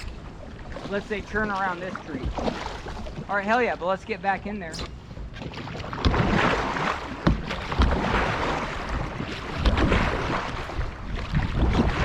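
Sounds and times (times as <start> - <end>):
paddle strokes splashing water: 0.0 - 3.5, 4.7 - 12.0
wind buffeting microphone: 4.7 - 12.0.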